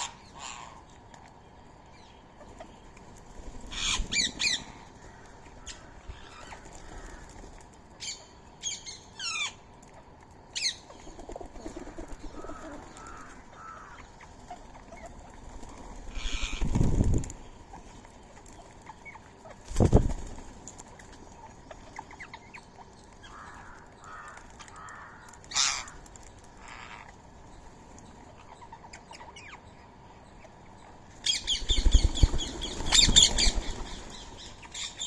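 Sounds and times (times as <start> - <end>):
parakeets squawking: 3.7 - 4.7, 16.1 - 16.8
wing flaps: 15.3 - 17.4, 19.6 - 20.8, 31.4 - 34.3.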